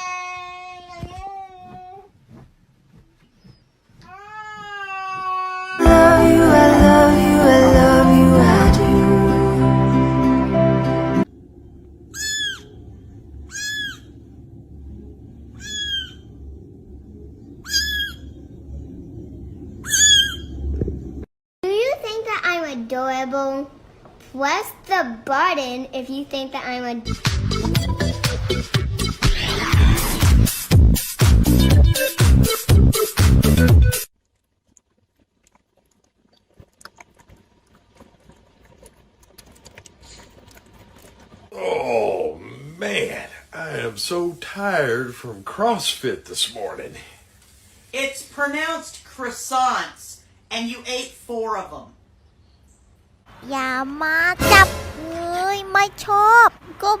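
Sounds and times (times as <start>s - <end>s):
music: 5.8s - 11.2s, 27.1s - 34.1s, 54.4s - 55.1s
low hum: 5.8s - 21.3s
animal's high-pitched call: 12.1s - 12.8s, 13.5s - 14.1s, 15.6s - 16.3s, 17.6s - 18.3s, 19.8s - 20.6s
faint small clicks and crackles: 34.2s - 41.5s.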